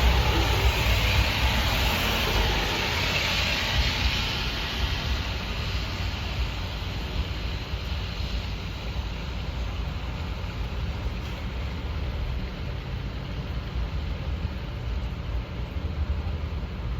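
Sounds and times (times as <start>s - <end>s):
wind buffeting microphone: 0.0s - 11.7s.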